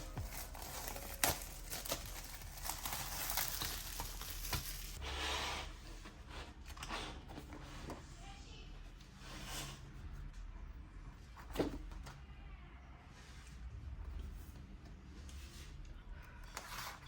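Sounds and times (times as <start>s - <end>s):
packaging crinkling and tearing: 0.0s - 5.0s.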